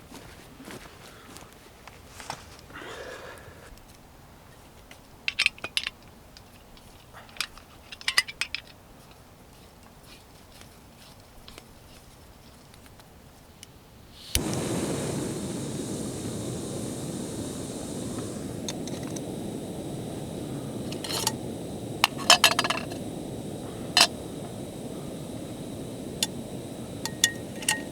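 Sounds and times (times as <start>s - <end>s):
gas stove burner rushing: 14.2s - 27.9s
stove igniter click: 14.2s - 27.9s.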